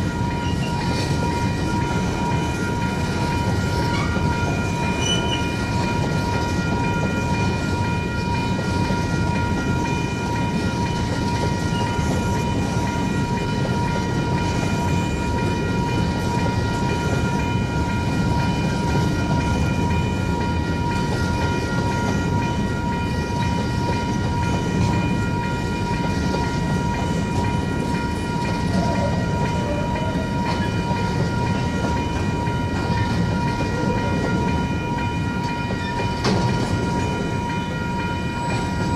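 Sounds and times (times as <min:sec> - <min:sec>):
crossing warning bells ringing: 0:00.0 - 0:38.9
train rumbling past: 0:00.0 - 0:38.9.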